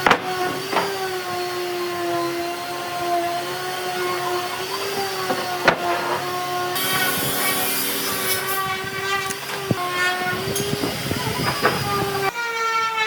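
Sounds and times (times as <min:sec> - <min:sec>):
power tool motor whining: 0:00.0 - 0:13.0
rough hiss of cutting wood: 0:06.8 - 0:12.3.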